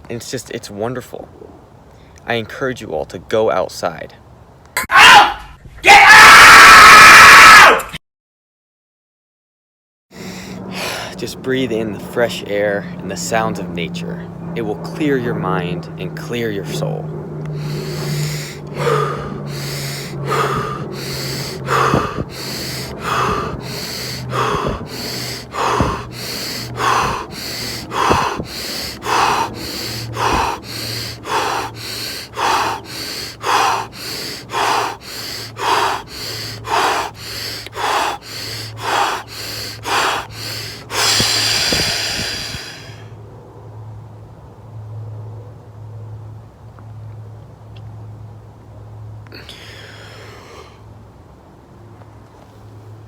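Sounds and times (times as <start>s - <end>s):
person breathing forcefully: 10.2s - 11.2s, 17.5s - 43.2s, 49.4s - 50.8s.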